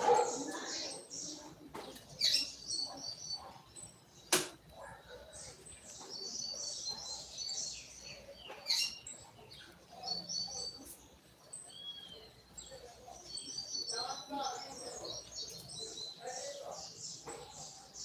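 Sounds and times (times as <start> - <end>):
bird twittering song: 0.0 - 18.0
sharp click: 4.3 - 4.6.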